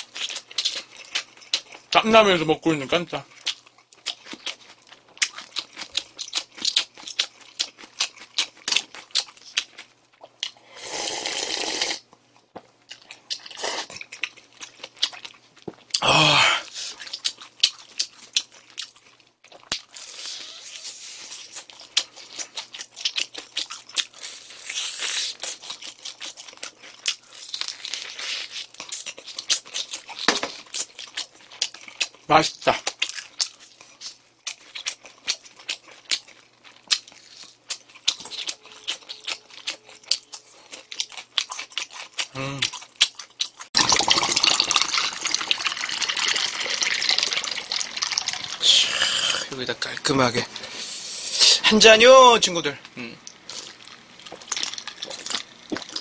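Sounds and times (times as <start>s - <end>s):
chewing and crunching: 0.0s - 10.9s, 12.1s - 16.0s, 16.6s - 50.9s, 52.8s - 56.0s.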